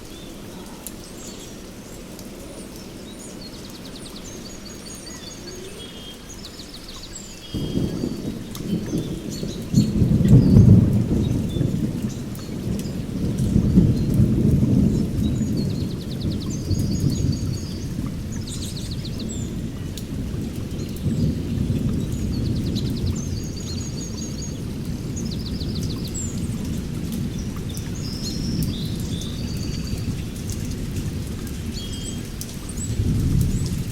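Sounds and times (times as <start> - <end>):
birds chirping: 0.0 - 30.8
steady rain: 0.0 - 33.9
thunder rumbling: 7.5 - 33.9.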